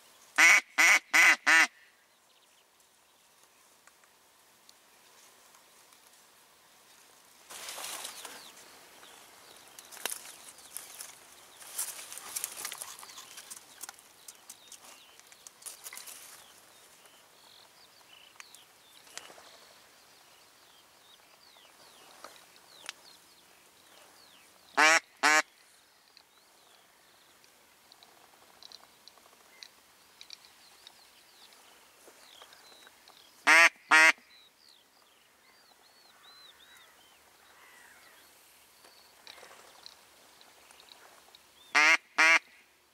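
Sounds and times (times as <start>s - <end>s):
duck quacking: 0.4s - 1.8s, 24.8s - 25.4s, 33.5s - 34.2s, 41.8s - 42.4s
light rustling and crackling: 2.4s - 19.9s, 26.0s - 33.4s, 38.8s - 41.6s.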